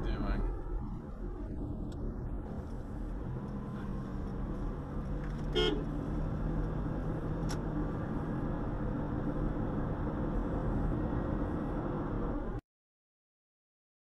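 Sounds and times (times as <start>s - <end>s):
car engine drone: 0.0s - 12.6s
road rumble: 0.0s - 12.6s
car horn beep: 5.5s - 5.9s.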